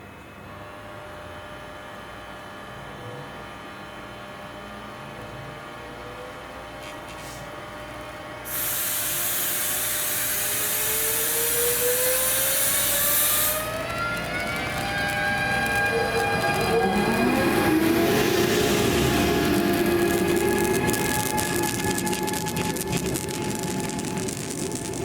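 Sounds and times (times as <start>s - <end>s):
loud air hiss: 8.4s - 13.9s
electric train motors whining: 8.5s - 25.0s.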